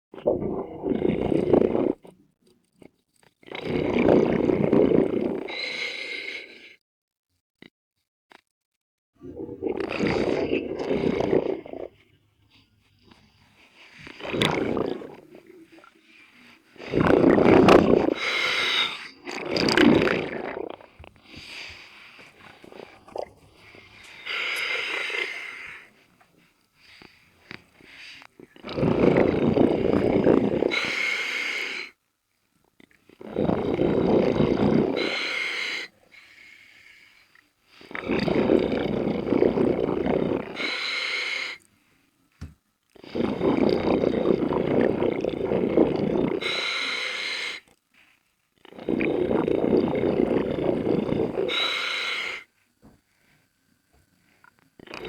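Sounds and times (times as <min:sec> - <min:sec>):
diver exhaling bubbles: 0:00.2 - 0:02.2, 0:03.5 - 0:06.1, 0:09.2 - 0:12.2, 0:13.8 - 0:31.9, 0:33.2 - 0:35.9, 0:37.9 - 0:40.9, 0:43.0 - 0:47.6, 0:48.6 - 0:52.5, 0:54.8 - 0:55.0
scuba regulator breathing hiss: 0:46.4 - 0:47.7, 0:51.4 - 0:52.5.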